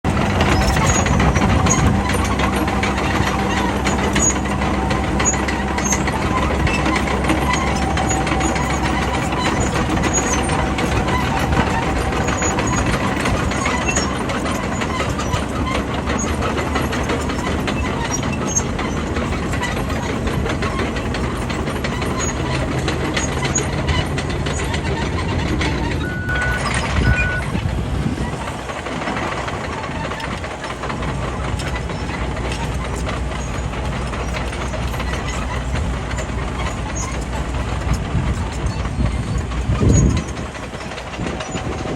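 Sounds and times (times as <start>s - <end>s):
bulldozer diesel engine running: 0.0s - 41.9s
rattle of clicks: 0.1s - 41.9s
short high beeps: 26.0s - 27.5s.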